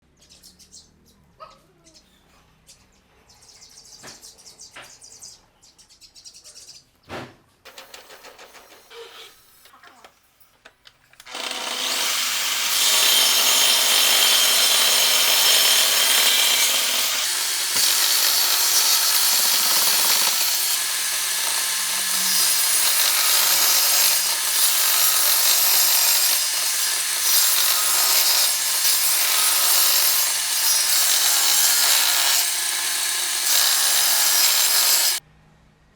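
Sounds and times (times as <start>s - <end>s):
faint bird chirps: 0.1s - 7.1s
power tool cutting wood: 11.2s - 35.2s.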